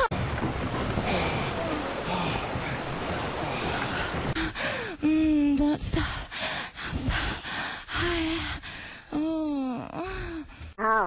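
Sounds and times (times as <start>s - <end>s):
steady rushing hiss: 0.2s - 4.4s.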